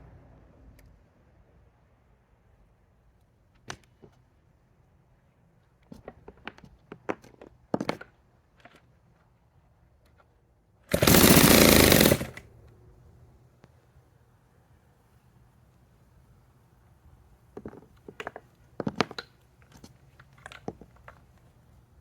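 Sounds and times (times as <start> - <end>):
chainsaw engine burst: 10.9 - 12.5.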